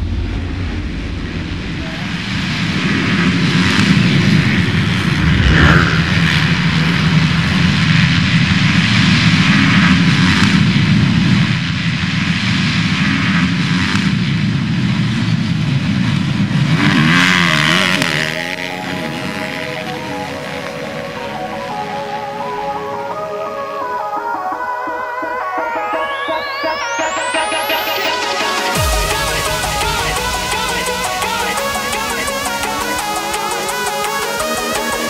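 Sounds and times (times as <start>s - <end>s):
motocross engines revving: 0.9s - 10.8s, 14.8s - 21.4s.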